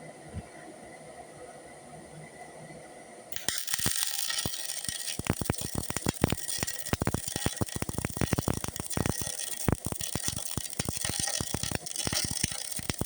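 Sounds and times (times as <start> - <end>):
arc welding hiss and crackles: 3.3 - 13.0.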